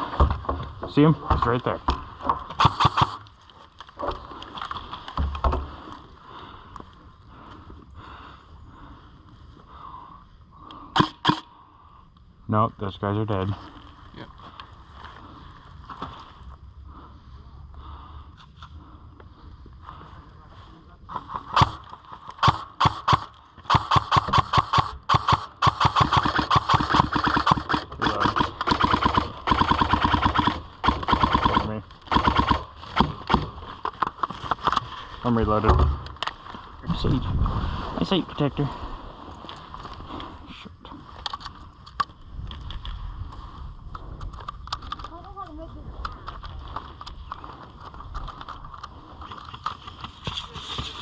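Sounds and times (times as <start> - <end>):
sharp clicks: 2.5 - 3.3, 11.0 - 11.5, 21.6 - 33.5
airsoft rifle firing full auto: 2.6 - 3.2, 11.0 - 11.4, 21.6 - 33.5.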